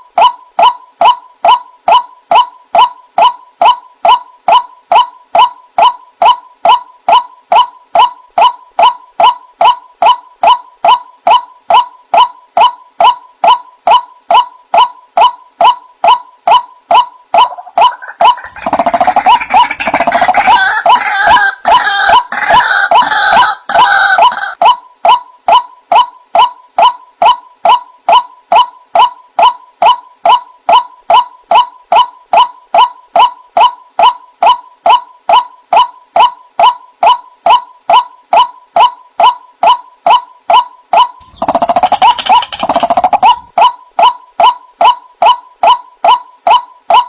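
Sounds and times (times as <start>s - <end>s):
waterhen calling kwak: 17.4s - 24.6s, 41.0s - 43.7s
harsh jumble of bird calls: 41.2s - 43.4s.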